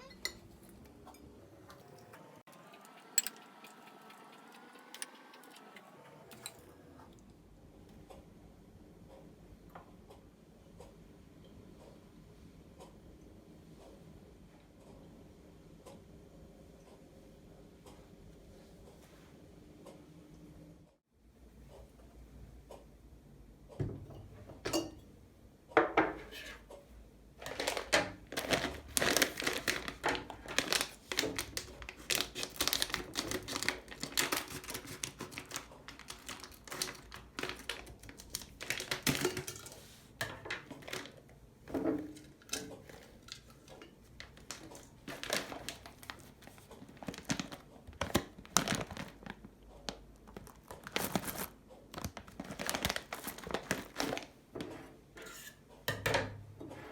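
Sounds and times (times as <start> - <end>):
kitchen items clicking and knocking: 0.0 - 2.3, 27.4 - 49.3
packaging crinkling and rustling: 27.4 - 39.9, 40.5 - 41.2, 42.4 - 54.4.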